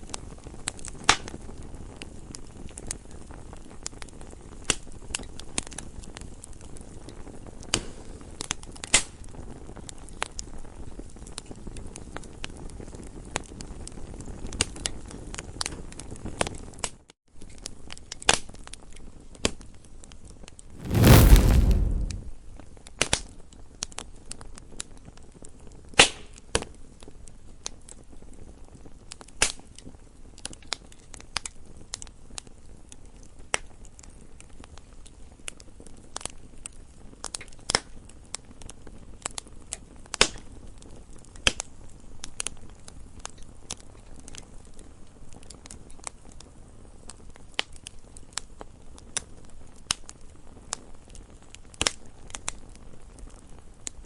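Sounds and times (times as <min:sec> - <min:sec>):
campfire crackling and popping: 0:20.8 - 0:22.3
low rumble of flame: 0:20.8 - 0:22.4.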